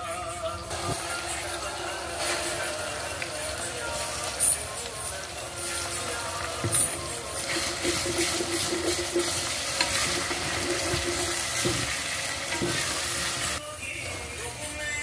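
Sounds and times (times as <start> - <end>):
onions sizzling in hot oil: 0.7 - 14.1
wooden spatula scraping pot: 6.5 - 13.6.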